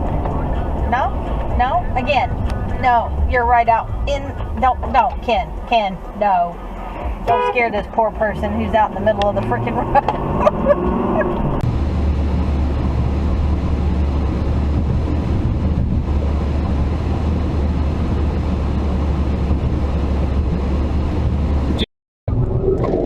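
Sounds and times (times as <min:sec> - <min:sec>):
vehicle road and wind noise: 0:00.0 - 0:23.0.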